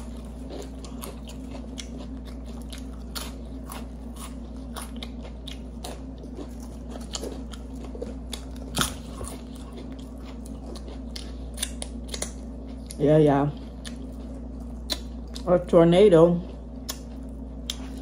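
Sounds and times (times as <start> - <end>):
crunching and chewing food: 0.0 - 18.0
low hum: 0.0 - 18.0.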